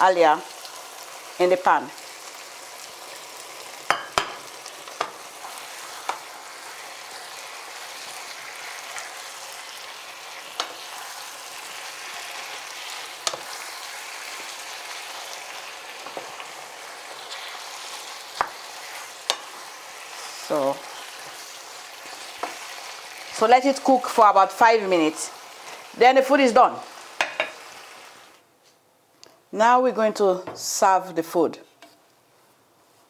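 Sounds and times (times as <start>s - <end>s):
stew sizzling in a pan: 0.0s - 28.4s
spoon knocking against pan: 3.9s - 5.2s, 27.2s - 27.6s.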